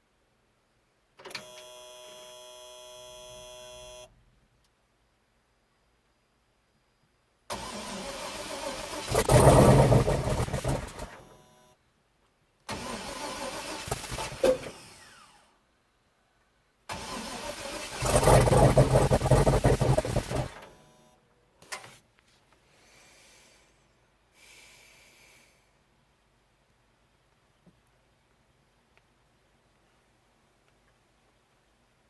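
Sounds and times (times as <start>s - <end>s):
engine starting and dying: 7.5s - 11.3s, 12.7s - 15.5s, 16.9s - 20.8s.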